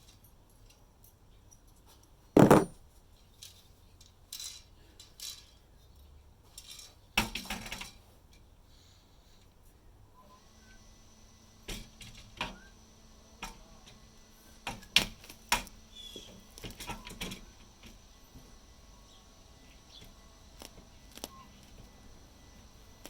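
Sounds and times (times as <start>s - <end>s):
faint bird chirps: 15.9s - 16.4s, 21.2s - 21.6s.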